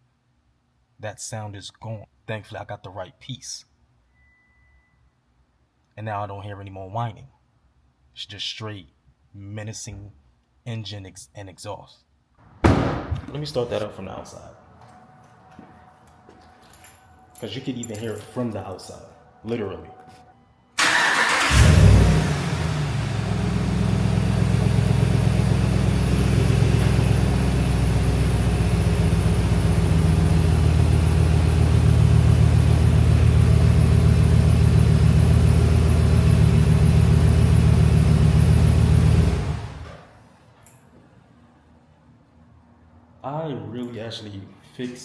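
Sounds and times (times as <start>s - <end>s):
truck engine idling: 20.8s - 39.8s
truck engine cranking and starting: 20.8s - 40.2s.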